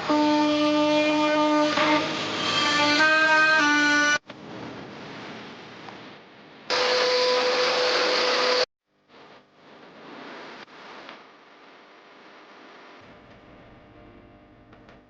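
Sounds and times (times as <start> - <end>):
machine whirring and humming: 13.0 - 15.0.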